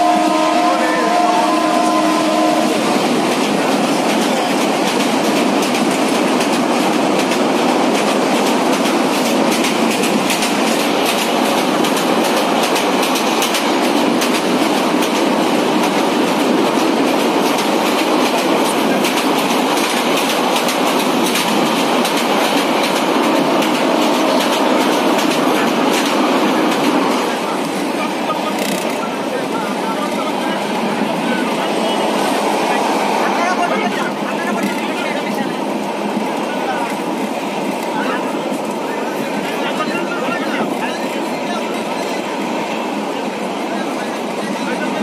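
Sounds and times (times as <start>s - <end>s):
train wheels rumbling on rails: 0.0s - 45.0s
rapid clickety-clack of wheels: 3.0s - 29.1s.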